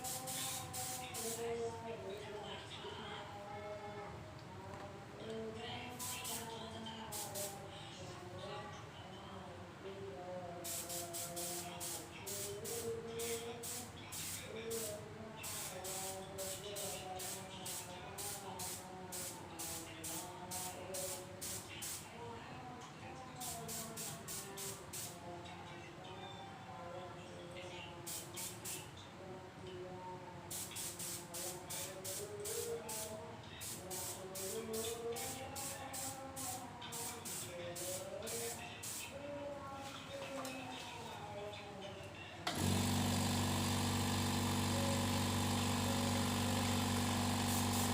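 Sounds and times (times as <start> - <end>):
spray paint can bursts: 0.0 - 1.4, 10.7 - 14.9, 15.5 - 22.0, 30.5 - 39.0, 42.6 - 47.9.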